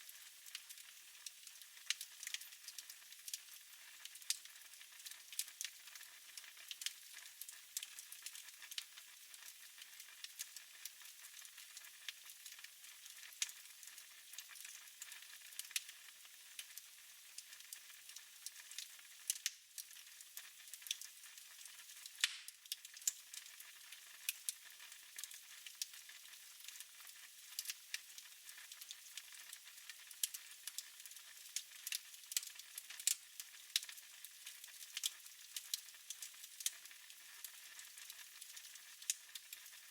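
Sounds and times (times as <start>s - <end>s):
fire crackling and popping: 0.1s - 8.8s, 9.4s - 15.9s, 17.4s - 39.8s.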